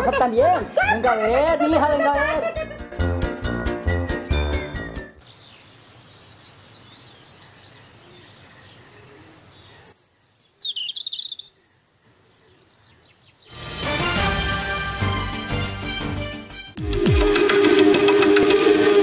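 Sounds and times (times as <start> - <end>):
music: 0.0 - 5.2, 13.5 - 19.0
birds chirping: 4.5 - 13.6.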